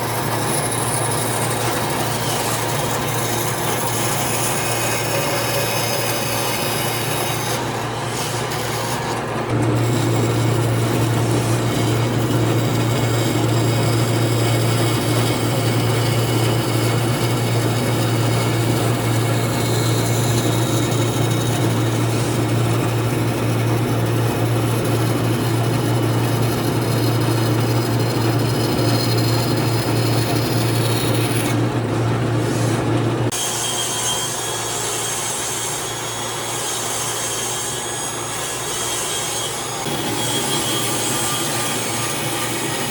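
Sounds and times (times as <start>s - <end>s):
tool cutting wood: 0.0s - 31.6s, 32.5s - 42.9s
power tool motor hum: 39.8s - 42.9s.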